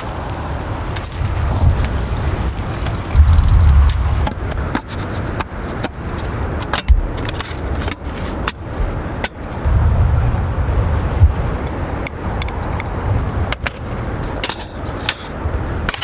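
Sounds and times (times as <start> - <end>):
low rumble: 0.0 - 4.8, 9.6 - 13.6
raindrops tapping on tent fabric: 0.0 - 9.7.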